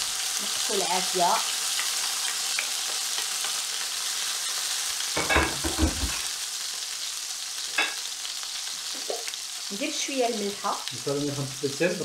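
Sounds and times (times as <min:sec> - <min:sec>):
vegetables sizzling in oil: 0:00.0 - 0:12.0
knocks: 0:05.2 - 0:06.2.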